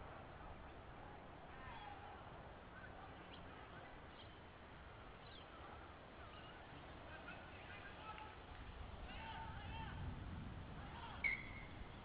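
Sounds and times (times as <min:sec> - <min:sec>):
low background noise: 0:00.0 - 0:12.0
bird chirps and twittering: 0:04.1 - 0:04.4, 0:05.2 - 0:05.5.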